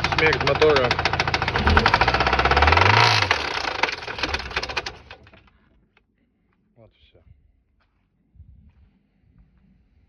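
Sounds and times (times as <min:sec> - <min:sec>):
car engine knocking: 0:00.0 - 0:05.4.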